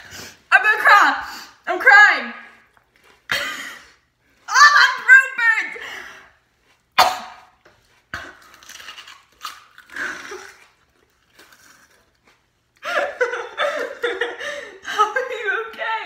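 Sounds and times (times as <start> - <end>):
wet chewing: 7.8 - 12.8
teeth crunching raw onion: 8.0 - 12.8.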